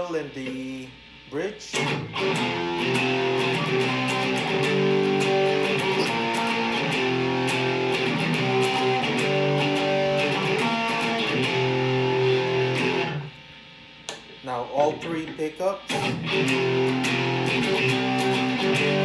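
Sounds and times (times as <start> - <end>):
distorted electric guitar chords: 0.0 - 13.4, 14.3 - 19.0.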